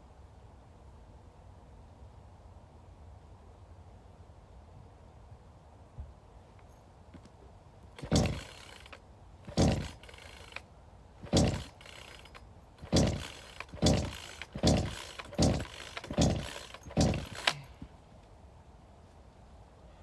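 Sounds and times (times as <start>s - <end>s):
heavy strokes on wood: 8.0s - 10.6s, 11.2s - 17.9s.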